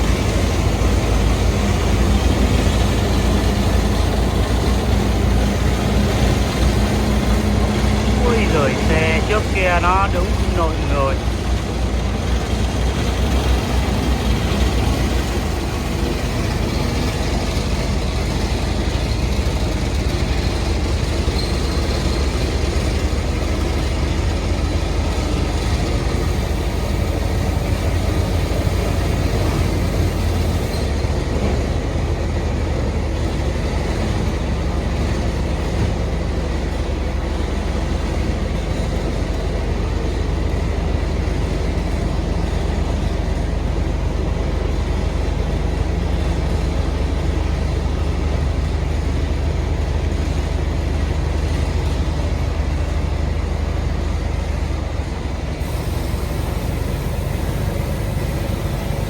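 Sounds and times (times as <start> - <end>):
truck engine rumbling: 0.0 - 18.3
road noise: 0.0 - 19.4.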